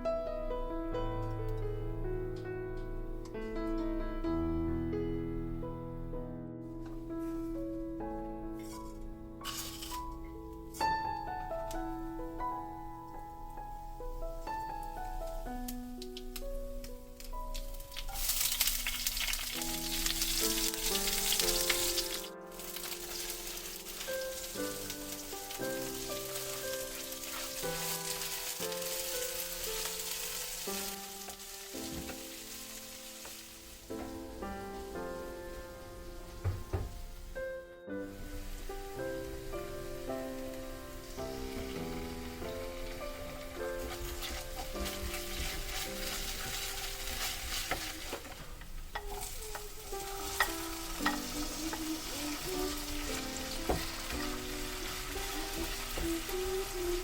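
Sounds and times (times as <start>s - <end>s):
background music of held notes: 0.0s - 57.0s
food sizzling in a pan: 9.4s - 10.1s, 17.2s - 37.4s, 38.0s - 57.0s.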